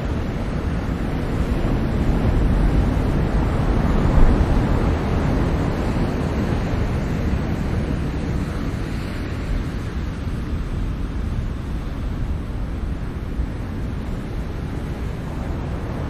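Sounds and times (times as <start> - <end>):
ocean waves washing: 0.0 - 16.0.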